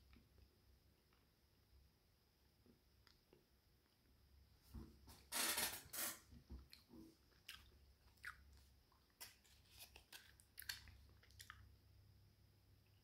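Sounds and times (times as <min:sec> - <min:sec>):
chewing gum crunch: 0:06.6 - 0:11.9.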